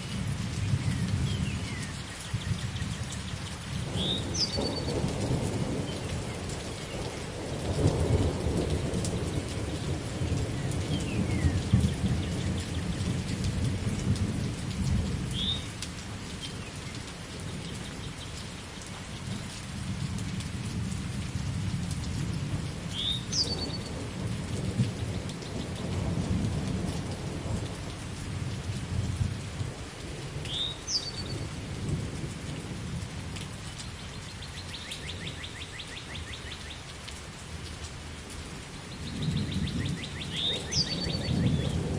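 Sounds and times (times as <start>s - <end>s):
steady rain: 0.0s - 41.9s
bird chirping: 4.0s - 4.9s, 23.0s - 23.9s, 30.5s - 31.4s, 39.0s - 41.8s
rolling thunder: 19.3s - 29.8s, 39.1s - 41.9s.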